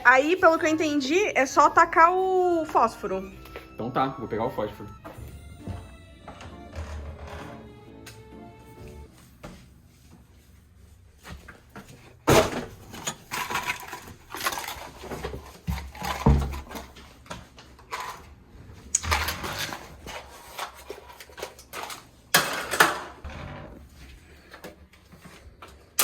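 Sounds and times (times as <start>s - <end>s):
objects knocking and clattering: 12.2s - 18.3s, 18.9s - 23.6s.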